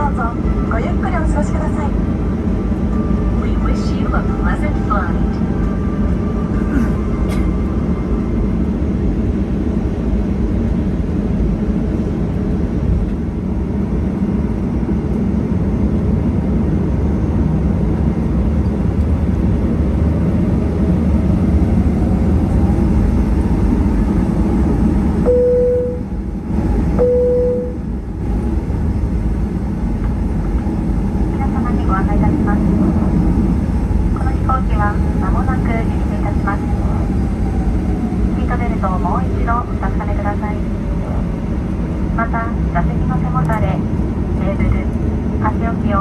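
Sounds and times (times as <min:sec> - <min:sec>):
airplane cabin engine rumble: 0:00.0 - 0:46.0
short single-pitch beeps: 0:25.3 - 0:26.2, 0:27.0 - 0:27.8.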